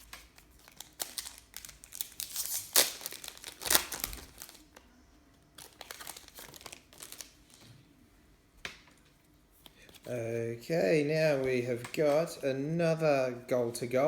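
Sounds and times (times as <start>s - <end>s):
wrapper packaging crinkling: 0.0s - 4.8s, 5.6s - 7.7s.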